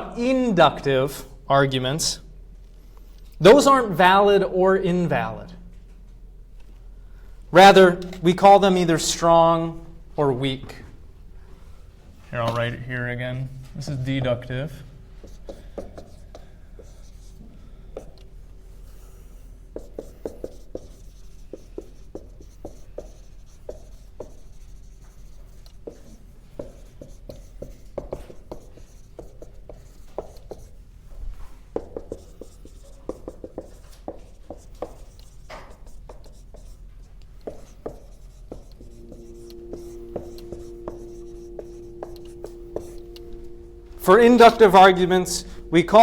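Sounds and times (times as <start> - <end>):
chalk writing on a board: 15.2 - 43.3
steady hum with overtones: 38.3 - 46.0.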